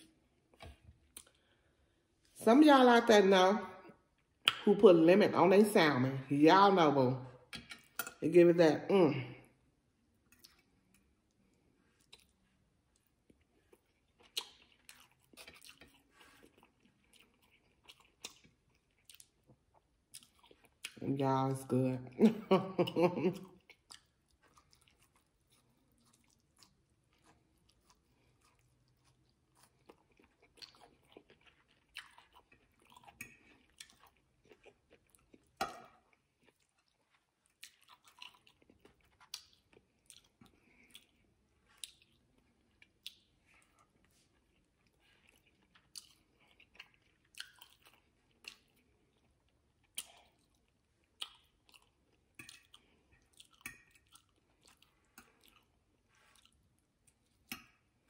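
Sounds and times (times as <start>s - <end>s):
chewing and mouth sounds: 0.0s - 1.6s, 10.2s - 21.1s, 22.3s - 58.0s.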